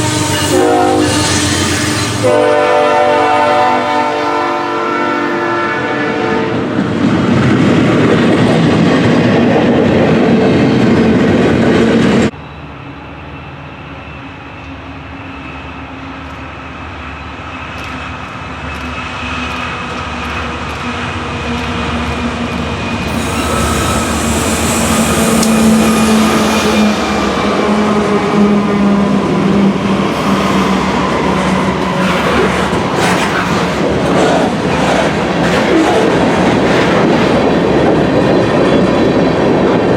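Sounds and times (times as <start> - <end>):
train horn: 0.0 - 6.8, 23.1 - 33.3
diesel locomotive hum: 0.0 - 39.9
train passing rumble: 0.0 - 39.9.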